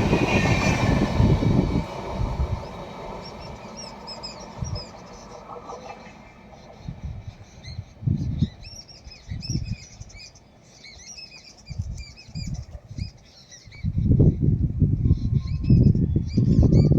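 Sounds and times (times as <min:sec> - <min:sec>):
low rumbles: 0:00.0 - 0:05.4
small birds chirping: 0:00.1 - 0:14.5.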